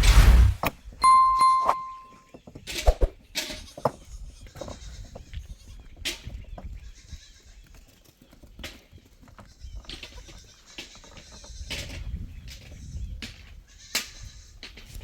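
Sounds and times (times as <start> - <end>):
ringing metallic tone: 1.0 - 2.2
goats bleating: 3.6 - 5.8, 6.8 - 7.6.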